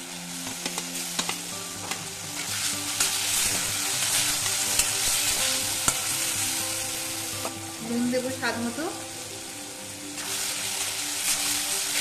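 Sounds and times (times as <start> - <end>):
food sizzling in oil: 0.0 - 12.0
spatula tapping and scraping pan: 0.4 - 2.0.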